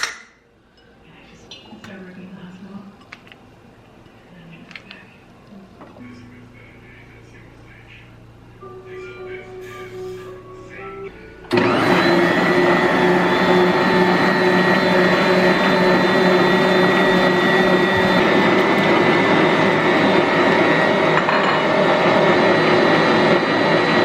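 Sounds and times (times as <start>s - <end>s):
electric mixer motor running: 11.5s - 24.0s.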